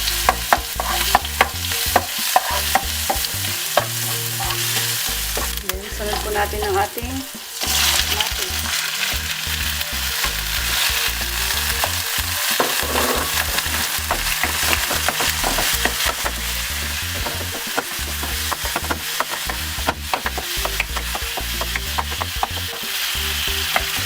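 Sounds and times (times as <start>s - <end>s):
utensil tapping and scraping pan: 0.0s - 7.0s, 10.2s - 24.0s
food sizzling in hot oil: 0.0s - 24.0s.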